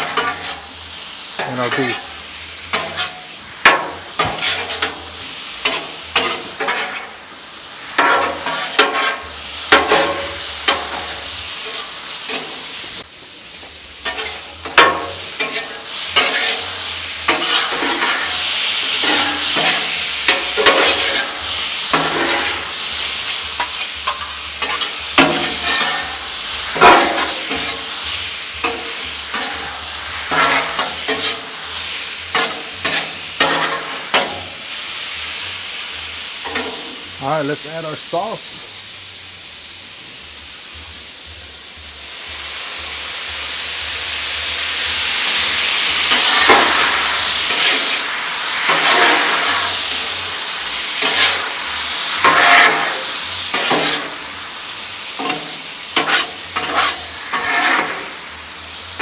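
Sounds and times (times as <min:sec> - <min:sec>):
food sizzling on a griddle: 0:00.0 - 0:59.0
metal spatulas scraping steel: 0:04.2 - 0:05.0, 0:23.6 - 0:26.2, 0:32.3 - 0:34.3, 0:56.0 - 0:58.0.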